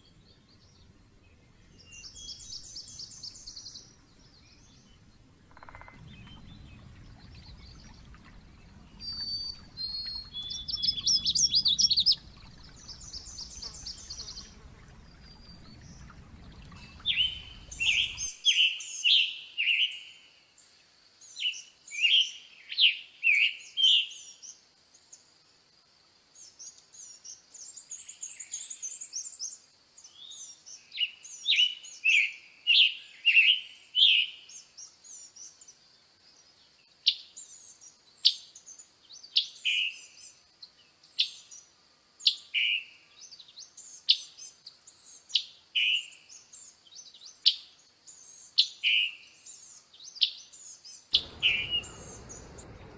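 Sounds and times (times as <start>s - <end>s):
songbird singing: 0.0s - 25.3s, 26.4s - 52.9s
high bird trill: 51.2s - 52.9s.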